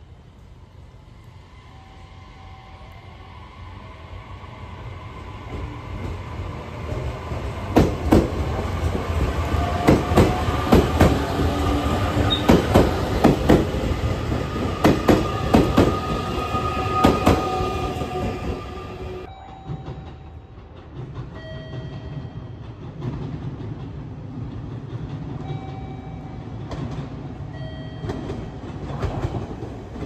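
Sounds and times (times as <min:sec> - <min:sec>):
train running hum: 0:00.0 - 0:30.0
train wheels clacking over rail joint: 0:12.1 - 0:13.8.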